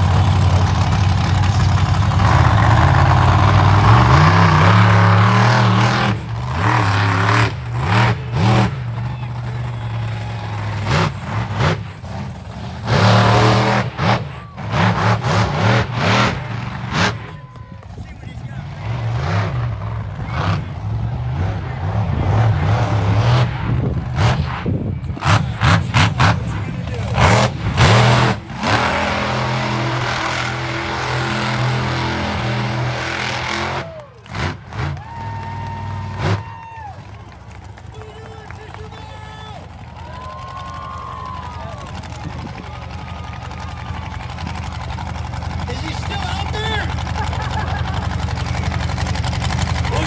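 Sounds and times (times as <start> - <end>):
monster truck engine revving: 0.0 - 50.0.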